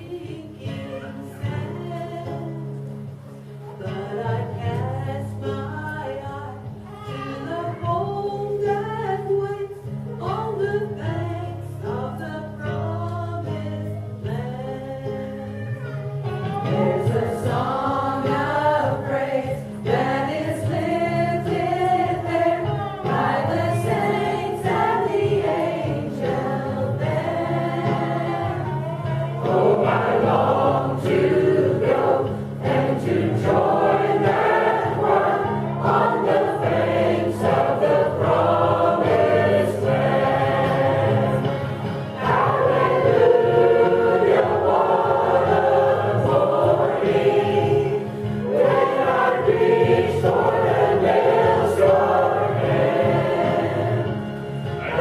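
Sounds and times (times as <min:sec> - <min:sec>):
group singing gospel song: 0:03.8 - 0:06.7, 0:16.6 - 0:55.0
low instrumental accompaniment: 0:05.7 - 0:55.0.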